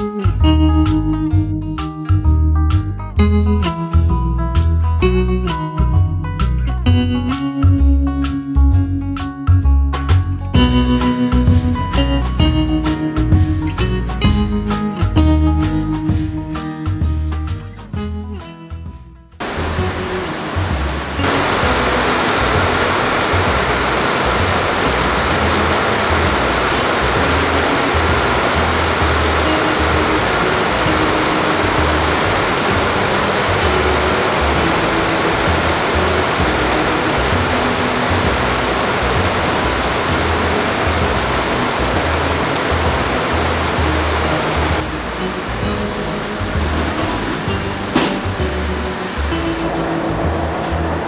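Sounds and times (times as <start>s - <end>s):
background music low notes: 0.0s - 51.0s
heavy rain pouring: 19.4s - 51.0s.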